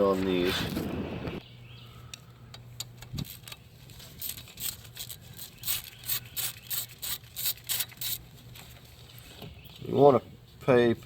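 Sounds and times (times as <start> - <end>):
hand ratchet clicking: 4.2 - 8.2.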